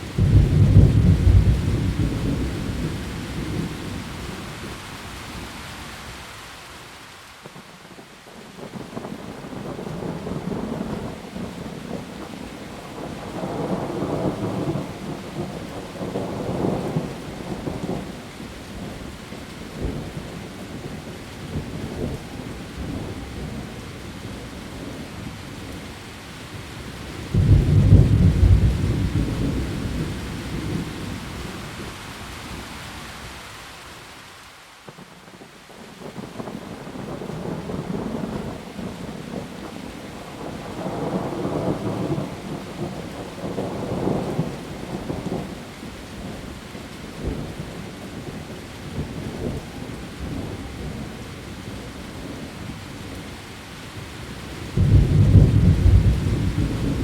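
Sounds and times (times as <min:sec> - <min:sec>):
heavy rain on leaves: 0:00.0 - 0:57.0
thunder rumbling: 0:00.2 - 0:04.8, 0:27.3 - 0:32.0, 0:54.7 - 0:57.0
loud thunder clap: 0:54.8 - 0:57.0.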